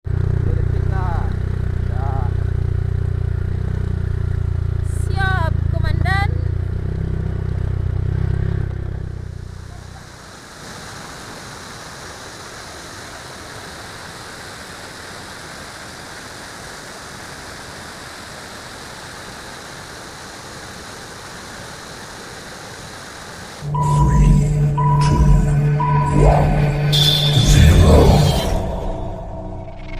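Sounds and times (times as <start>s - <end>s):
motorcycle engine: 0.0s - 10.2s
waterfall rushing over rapids: 9.9s - 23.6s.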